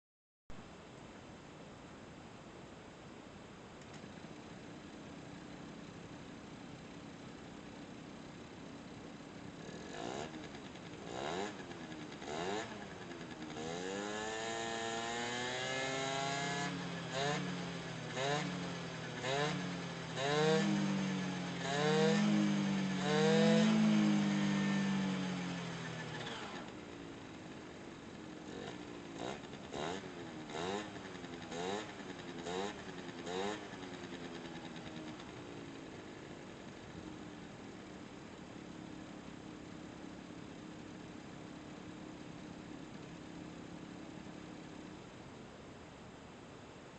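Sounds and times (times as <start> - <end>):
scooter engine revving: 9.3 - 38.0.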